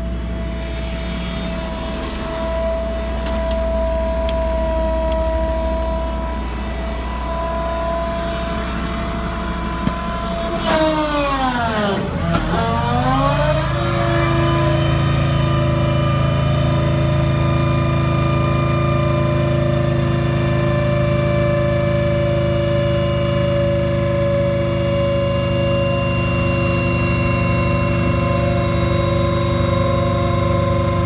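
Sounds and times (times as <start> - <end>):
engine running: 0.0 - 31.0.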